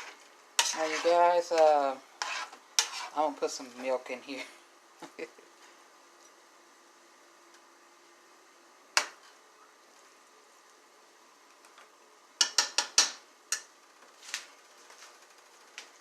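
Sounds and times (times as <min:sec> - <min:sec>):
cookware and utensils clinking: 0:12.4 - 0:13.7.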